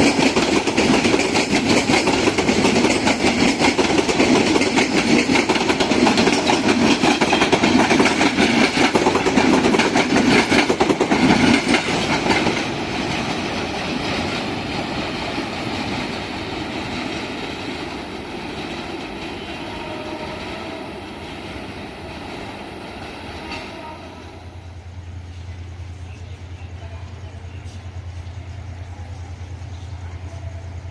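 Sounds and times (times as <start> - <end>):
train wheels clattering over rails: 0.0 - 24.4.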